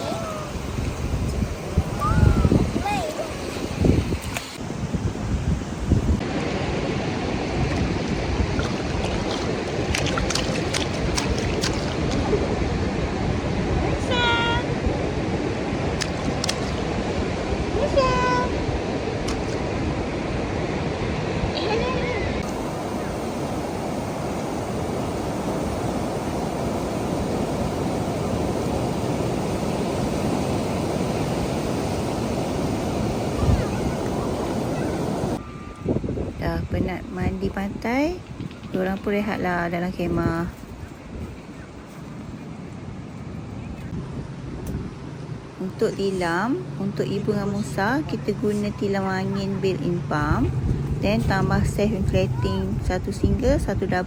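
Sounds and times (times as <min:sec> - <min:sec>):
surf: 0:00.0 - 0:35.8
wind: 0:00.0 - 0:54.0.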